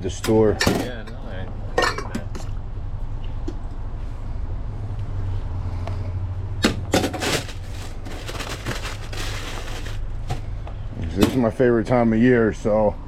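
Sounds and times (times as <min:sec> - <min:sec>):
rustling and light clatter: 0:06.9 - 0:11.4.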